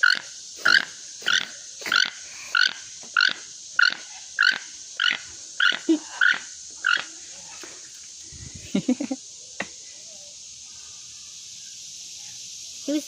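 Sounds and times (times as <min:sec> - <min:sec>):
toucan calling: 0:00.0 - 0:07.6.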